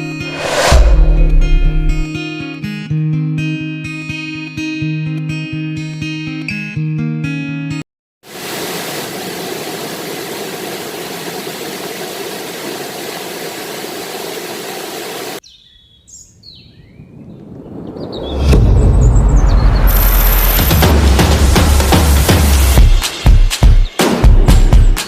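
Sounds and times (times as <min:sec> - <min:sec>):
river rushing: 0:08.3 - 0:15.4.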